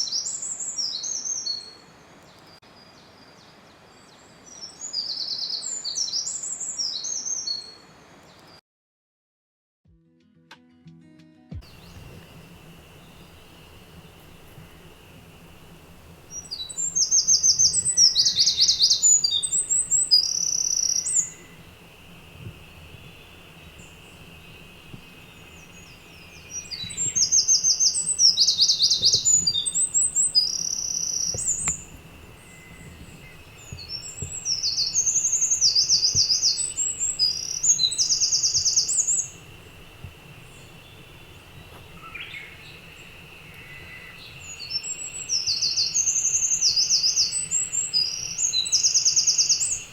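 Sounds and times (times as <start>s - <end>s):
songbird singing trills: 0.0s - 8.4s, 11.6s - 49.9s
faint steady high hum: 11.6s - 49.9s.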